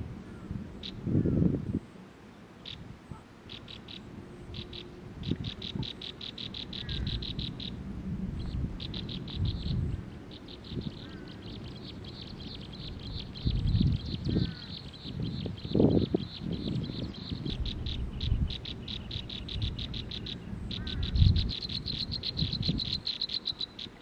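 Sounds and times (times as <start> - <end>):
rapid high bird chirps: 3.5 - 7.8, 8.4 - 24.0
low uneven rumble: 4.0 - 22.9.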